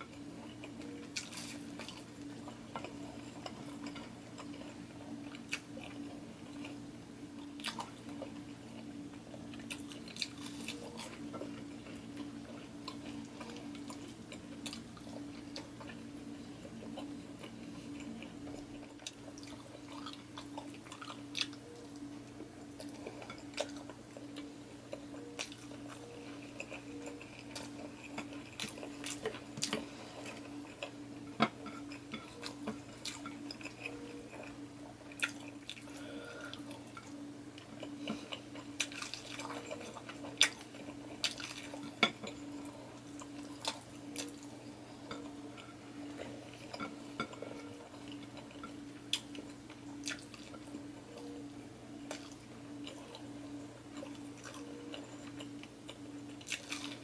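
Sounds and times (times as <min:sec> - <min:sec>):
chewing and wet mouth clicks: 0:48.4 - 0:50.5.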